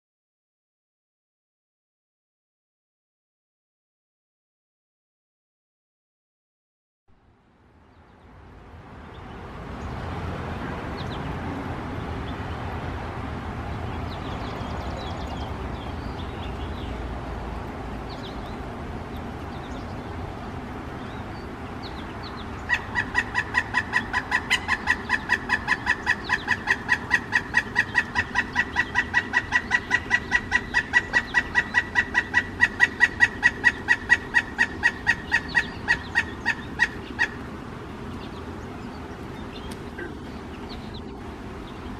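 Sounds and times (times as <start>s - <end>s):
woodpecker clucking calls: 21.8s - 37.5s, 38.2s - 41.2s.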